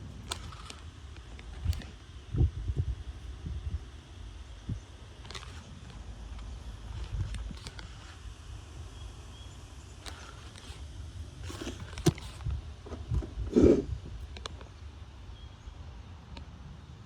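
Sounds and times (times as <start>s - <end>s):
wind buffeting microphone: 1.4s - 5.0s, 11.1s - 14.4s.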